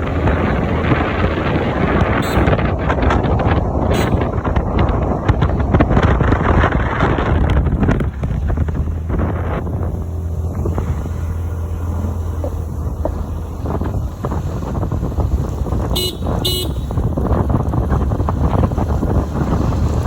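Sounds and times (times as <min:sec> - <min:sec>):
car driving on rough road: 0:00.0 - 0:20.0
car horn beeps: 0:02.2 - 0:02.7, 0:03.9 - 0:04.3, 0:15.9 - 0:17.1.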